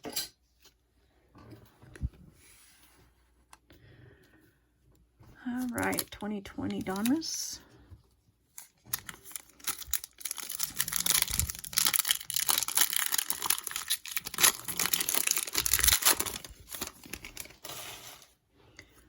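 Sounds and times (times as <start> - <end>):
wrapper crinkling: 5.6 - 7.3, 8.6 - 17.7
foil card pack tearing open: 8.9 - 17.6.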